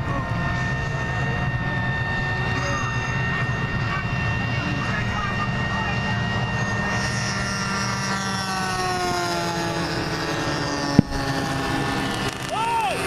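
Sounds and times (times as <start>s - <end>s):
model plane engines: 0.0s - 13.0s.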